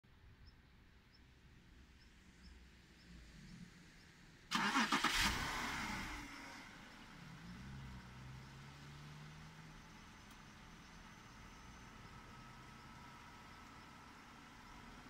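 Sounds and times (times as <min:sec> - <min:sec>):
car starter cranking: 0:04.5 - 0:06.0
car engine idling: 0:04.5 - 0:15.0.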